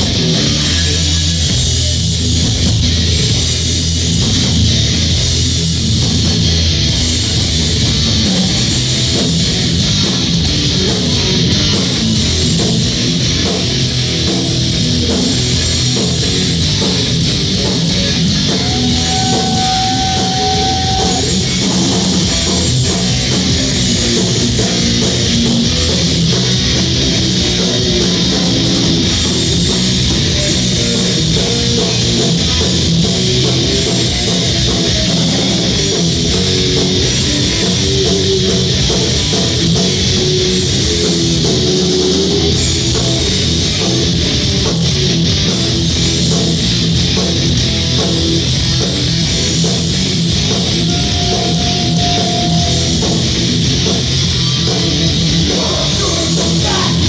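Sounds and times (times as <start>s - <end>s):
bass guitar: 0.0s - 57.0s
distorted electric guitars: 0.0s - 57.0s
drum kit: 0.0s - 57.0s
high held note: 18.6s - 21.5s, 50.8s - 53.3s.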